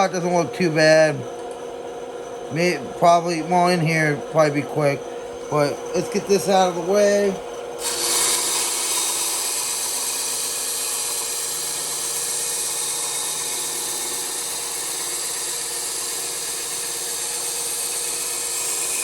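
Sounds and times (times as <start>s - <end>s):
bandsaw cutting wood: 5.6s - 19.0s.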